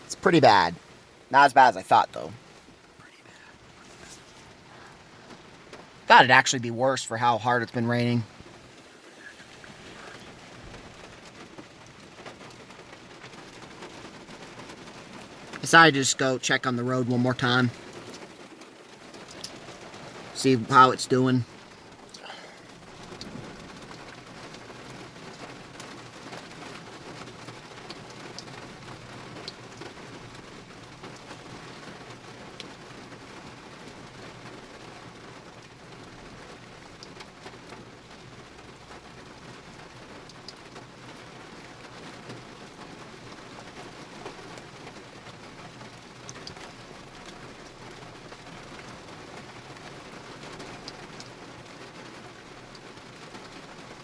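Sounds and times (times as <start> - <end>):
heavy rain falling: 0.0 - 54.0
raindrops ticking close by: 0.0 - 54.0.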